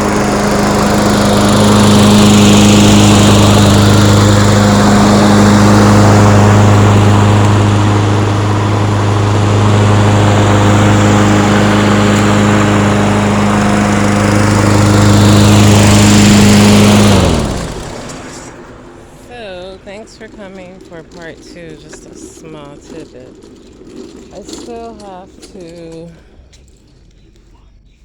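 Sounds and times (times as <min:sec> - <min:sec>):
lawn mower engine running: 0:00.0 - 0:27.5.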